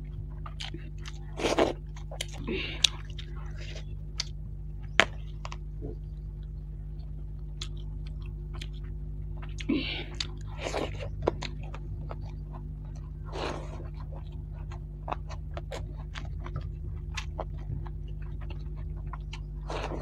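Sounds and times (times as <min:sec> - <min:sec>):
person chewing food: 0:00.0 - 0:20.0
steady low hum: 0:00.0 - 0:20.0.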